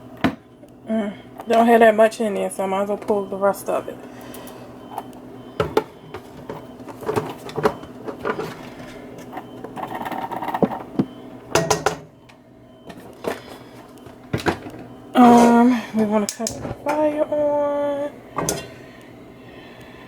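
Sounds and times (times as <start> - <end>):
kitchen containers clicking and knocking: 5.6 - 8.6, 9.2 - 12.1, 18.4 - 18.7.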